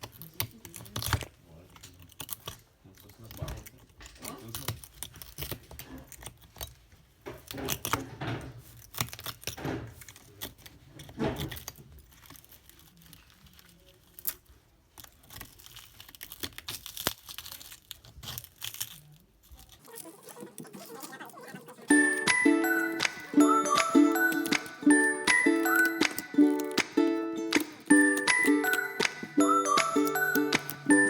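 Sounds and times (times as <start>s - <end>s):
small clicks and scrapes: 0.0s - 21.9s.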